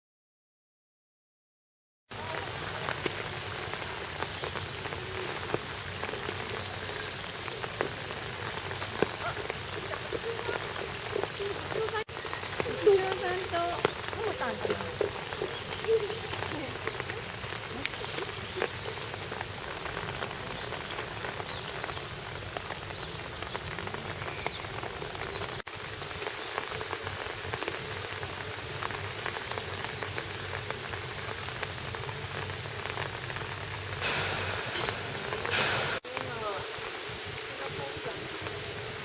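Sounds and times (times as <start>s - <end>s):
steady rain falling: 2.1s - 39.0s
rush of noise: 34.0s - 37.4s.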